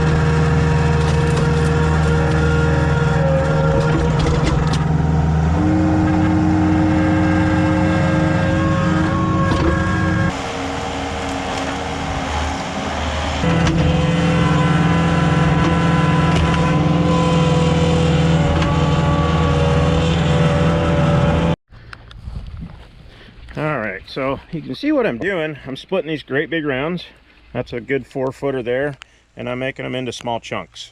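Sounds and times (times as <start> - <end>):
diesel engine at high throttle: 0.0 - 21.6.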